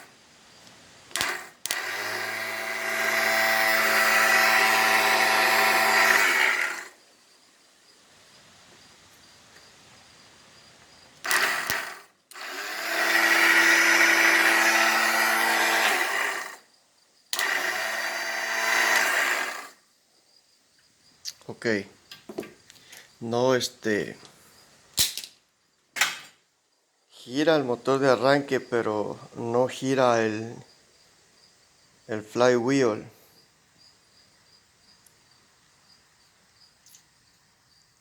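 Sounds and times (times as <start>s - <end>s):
starter click: 1.1s - 1.9s
electric starter motor whirring: 1.1s - 7.0s, 11.2s - 16.7s, 17.4s - 19.8s.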